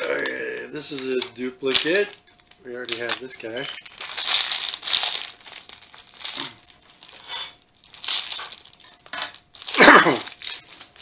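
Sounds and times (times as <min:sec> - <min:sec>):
packet crinkling and tearing: 0:00.1 - 0:11.0
loud cough: 0:09.8 - 0:10.3.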